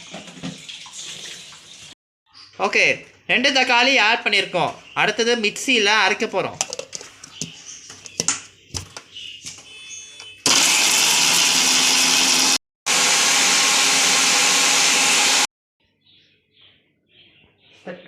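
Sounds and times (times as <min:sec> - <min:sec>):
mixer grinder pureeing tomatoes: 0:10.5 - 0:15.5.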